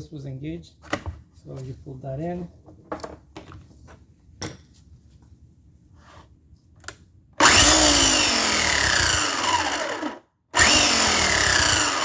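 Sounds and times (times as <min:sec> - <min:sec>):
electric chainsaw whining: 0:07.4 - 0:12.0.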